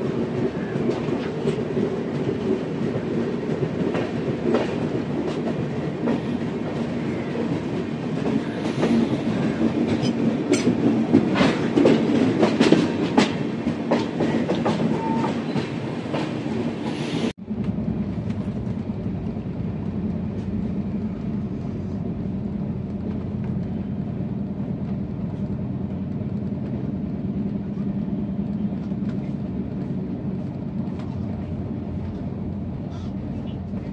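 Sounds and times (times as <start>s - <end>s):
train running rumble: 0.0s - 33.9s
train wheels clacking over rail joints: 0.8s - 16.5s.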